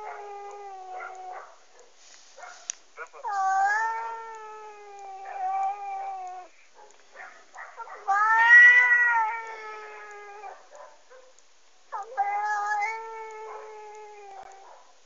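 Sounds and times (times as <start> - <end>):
cat yowling through speaker: 0.0 - 1.4, 3.2 - 6.5, 7.9 - 10.6, 12.0 - 14.7.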